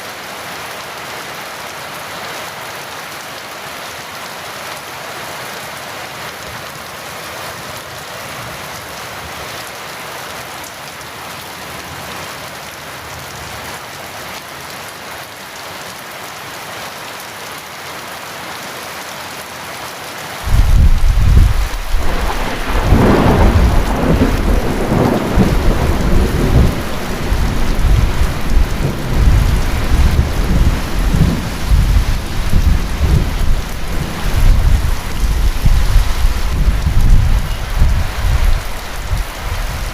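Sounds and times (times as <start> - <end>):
heavy rain: 0.0 - 39.9
thunder clap and rumbling: 20.5 - 39.9.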